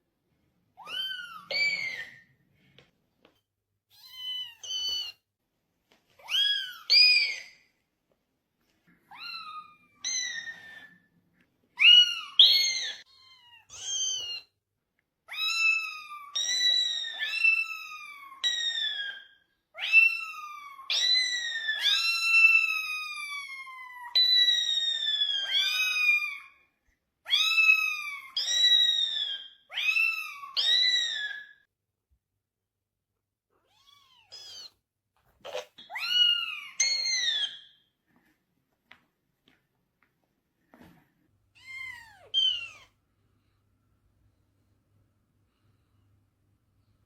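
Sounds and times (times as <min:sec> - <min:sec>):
cat meowing: 0:03.9 - 0:05.2, 0:11.8 - 0:14.5, 0:15.3 - 0:19.2, 0:19.8 - 0:26.6, 0:33.6 - 0:34.8, 0:35.4 - 0:37.6, 0:41.6 - 0:42.9.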